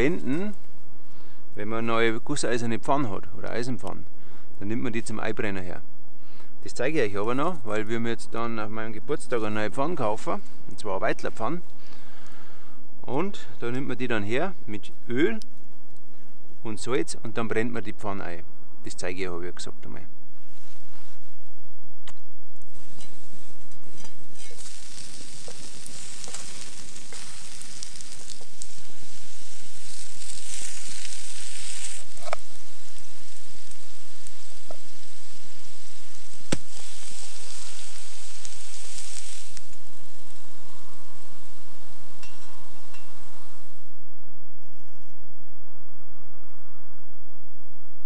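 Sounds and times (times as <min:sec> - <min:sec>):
food sizzling in a pan: 0:22.8 - 0:43.9
sharp pops: 0:29.8 - 0:35.1, 0:36.3 - 0:40.4.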